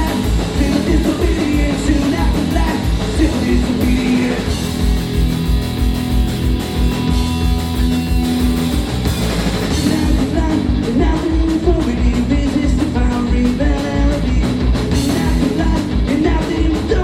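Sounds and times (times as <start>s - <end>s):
person singing: 0.0s - 4.6s, 9.7s - 17.0s
bass guitar: 0.0s - 17.0s
distorted electric guitars: 0.0s - 17.0s
fast driving drums: 0.0s - 17.0s.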